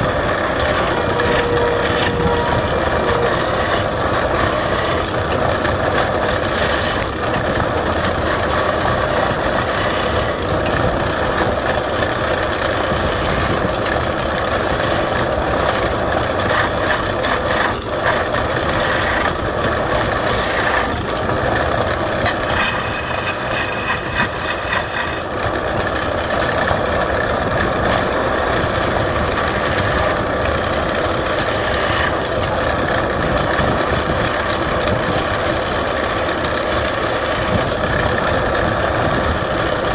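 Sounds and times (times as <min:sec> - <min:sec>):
turning tool cutting wood: 0:00.0 - 0:27.0, 0:27.6 - 0:33.8
wood lathe running: 0:00.0 - 0:39.9.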